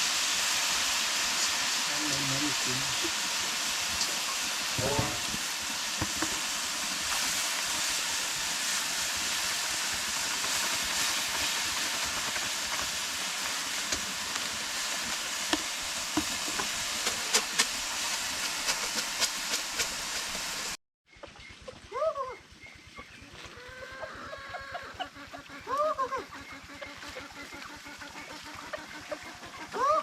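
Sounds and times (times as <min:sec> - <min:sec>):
food frying in hot oil: 0:00.0 - 0:20.8.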